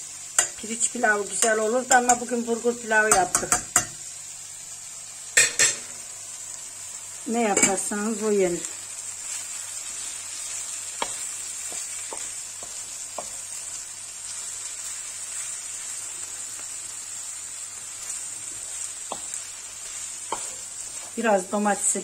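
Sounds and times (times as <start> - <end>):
meat sizzling in a pan: 0.0 - 22.0
wooden spatula knocking on pan: 3.1 - 4.0, 19.1 - 19.4.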